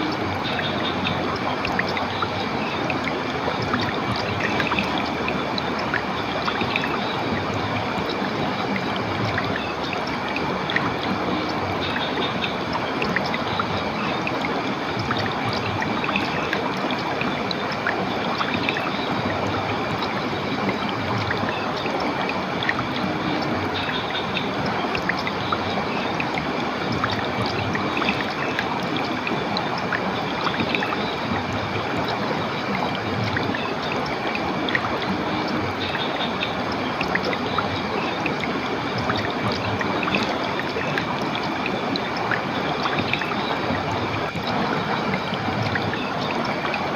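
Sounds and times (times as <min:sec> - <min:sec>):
stream water rushing and gurgling: 0:00.0 - 0:46.9.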